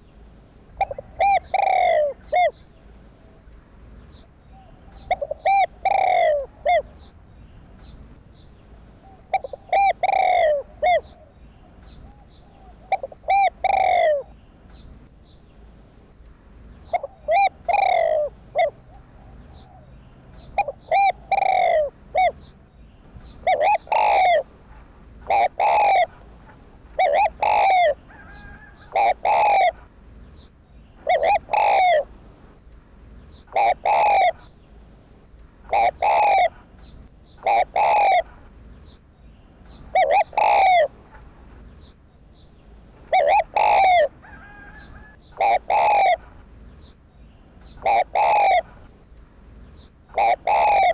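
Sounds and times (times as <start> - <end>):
dove cooing: 0.8 - 2.6, 4.5 - 7.1, 9.0 - 14.4, 16.8 - 22.5, 23.2 - 29.9, 31.0 - 32.2, 33.5 - 34.5, 35.7 - 36.7, 37.4 - 38.5, 39.8 - 41.2, 43.0 - 46.4, 47.8 - 48.8, 50.1 - 50.9.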